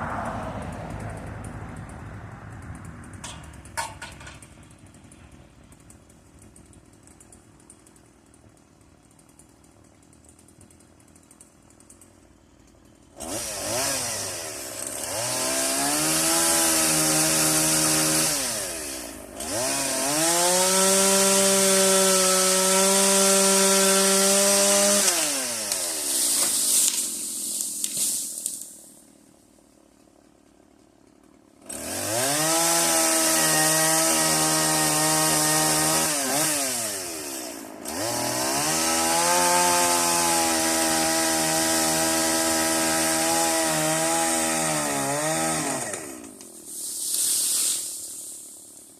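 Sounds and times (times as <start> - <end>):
chainsaw cutting wood: 0.0 - 48.9
chainsaw revving: 11.0 - 29.9, 30.9 - 48.9.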